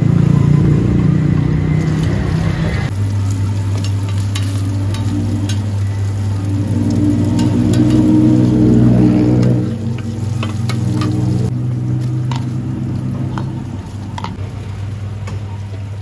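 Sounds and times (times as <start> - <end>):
omelette sizzling in oil: 1.9 - 15.2.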